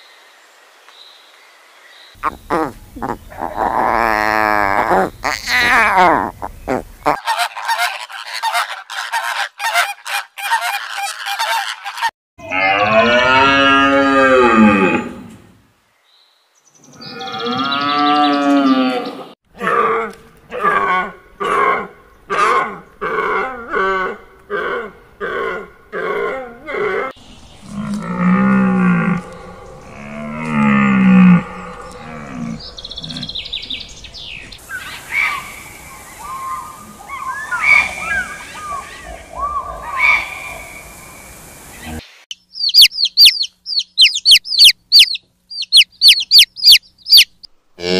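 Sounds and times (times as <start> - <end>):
deer stag roaring: 12.4 - 15.3, 17.2 - 34.1
deer grunting: 22.6 - 34.5
higher deer calls: 23.2 - 34.0.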